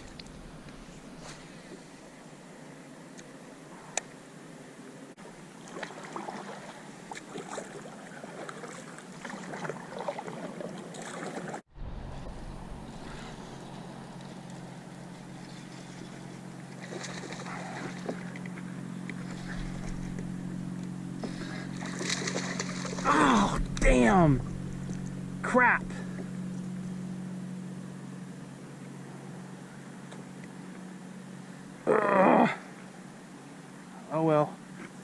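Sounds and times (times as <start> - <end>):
small water splashes: 5.4 - 11.6, 15.4 - 18.6, 21.2 - 23.5
steady low drone: 11.7 - 34.6.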